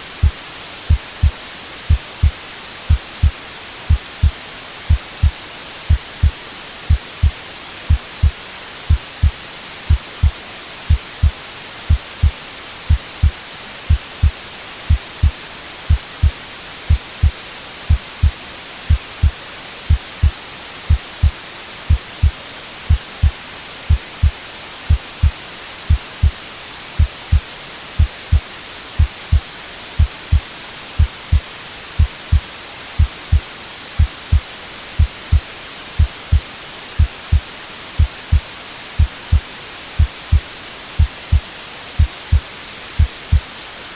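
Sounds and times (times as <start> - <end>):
white noise hiss: 0.0 - 43.9
heartbeat thumps: 0.2 - 26.4, 27.0 - 27.4, 28.0 - 28.4, 29.0 - 29.4, 30.0 - 30.4, 31.0 - 31.4, 32.0 - 32.4, 33.0 - 33.4, 34.0 - 36.4, 37.0 - 38.4, 39.0 - 39.4, 40.0 - 40.4, 41.0 - 41.4, 42.0 - 42.4, 43.0 - 43.4.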